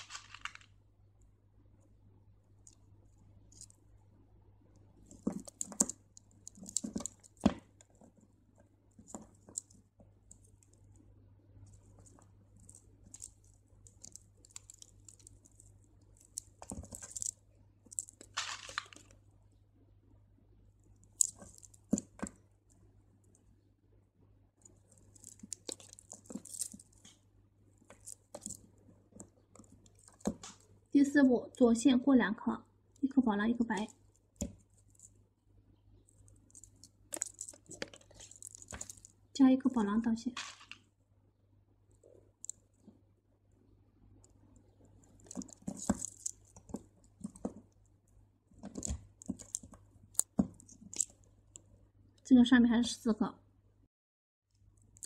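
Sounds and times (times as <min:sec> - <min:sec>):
light rustling and scratching: 0:05.0 - 0:11.0, 0:24.6 - 0:30.8, 0:36.0 - 0:39.2, 0:44.8 - 0:47.8, 0:48.5 - 0:51.7
beads clicking together: 0:11.7 - 0:19.2, 0:21.0 - 0:22.4, 0:24.6 - 0:27.2, 0:27.8 - 0:28.7, 0:29.5 - 0:30.7, 0:36.1 - 0:39.2, 0:45.0 - 0:47.6, 0:48.6 - 0:51.7.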